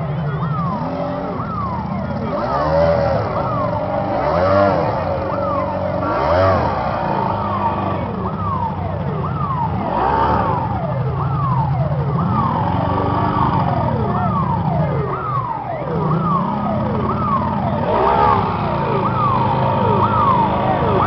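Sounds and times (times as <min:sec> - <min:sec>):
siren in falling sweeps: 0:00.0 - 0:21.0.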